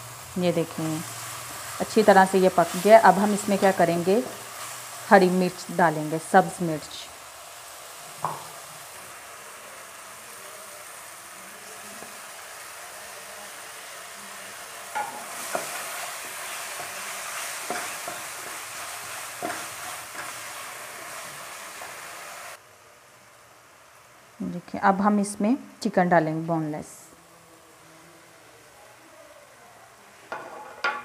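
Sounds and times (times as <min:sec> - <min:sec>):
vegetables sizzling in oil: 0:00.0 - 0:31.0
spatula scraping a pan: 0:15.0 - 0:22.0.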